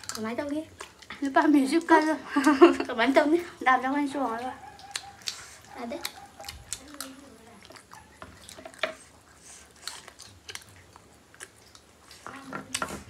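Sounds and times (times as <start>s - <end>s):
people chewing: 0.0s - 13.0s
wet mouth clicks and smacks: 4.6s - 12.3s.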